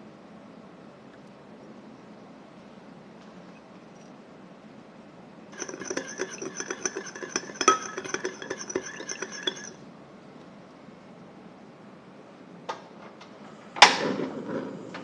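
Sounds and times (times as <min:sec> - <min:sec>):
utensil clinking against dish: 0:05.5 - 0:09.8.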